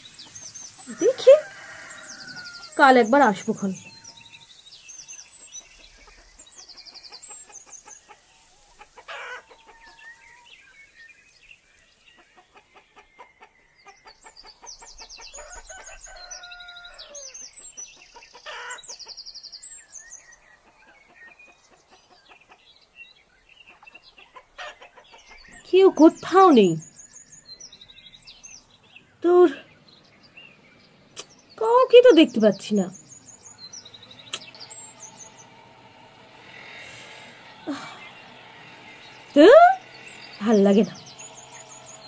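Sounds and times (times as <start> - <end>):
quick repeated clicking bird calls: 31.1 - 31.5, 34.2 - 34.8.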